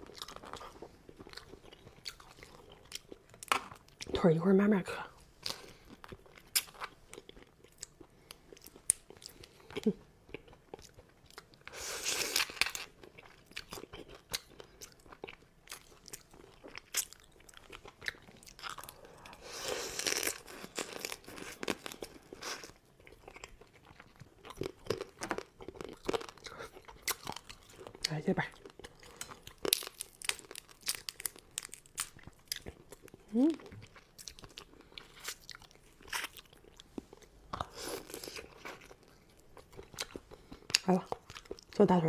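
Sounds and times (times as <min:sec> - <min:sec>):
person chewing: 0:00.0 - 0:04.1, 0:05.4 - 0:41.8
crab shell cracking: 0:29.1 - 0:32.8.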